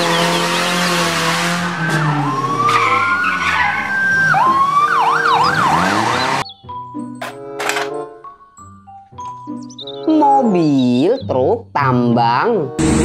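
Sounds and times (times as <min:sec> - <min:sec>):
ambulance siren: 0:00.0 - 0:06.9
engine and road noise: 0:00.0 - 0:09.6, 0:12.8 - 0:13.0.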